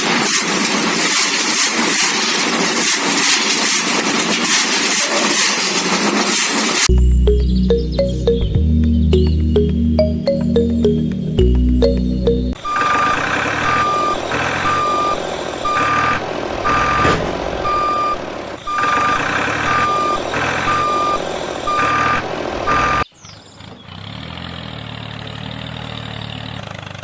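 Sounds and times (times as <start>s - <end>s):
vehicle engine rumbling: 2.7s - 27.0s
reversing alarm beeping: 6.9s - 23.0s.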